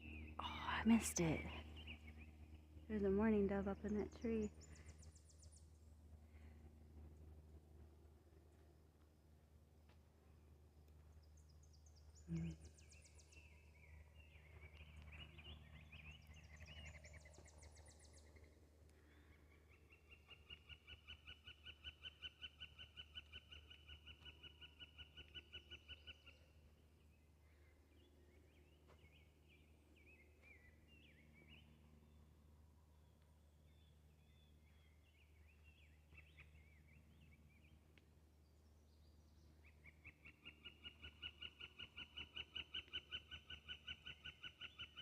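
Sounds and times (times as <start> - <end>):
birds chirping and warbling: 0.0 - 5.8, 11.2 - 26.6, 33.6 - 45.0.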